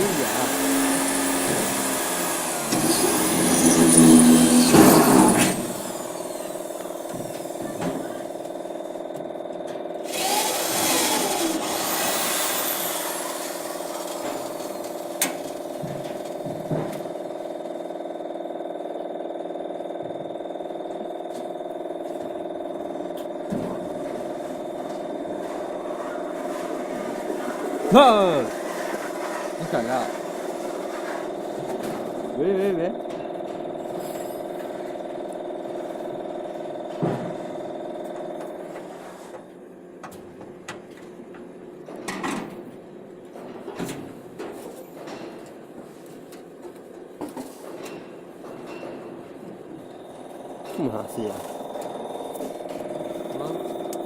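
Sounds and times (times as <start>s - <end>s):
lathe motor and spindle hum: 0.0s - 15.2s
thin high whine: 2.7s - 8.3s, 24.4s - 30.1s
clunks and knocks: 15.2s - 17.2s.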